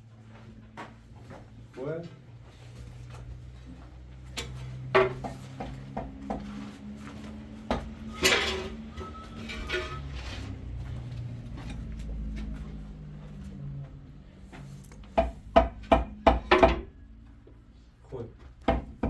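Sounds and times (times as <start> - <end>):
dishes and pots clinking: 8.0 - 10.1.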